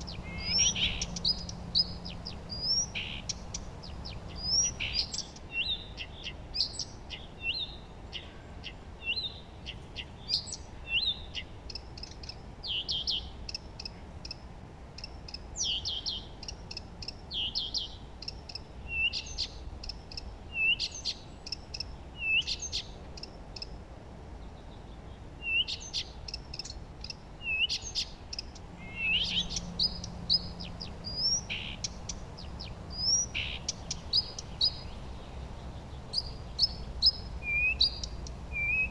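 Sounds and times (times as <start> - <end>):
songbirds chirping and singing: 0.0 - 13.6, 24.4 - 38.9
faint background hiss: 0.0 - 38.9.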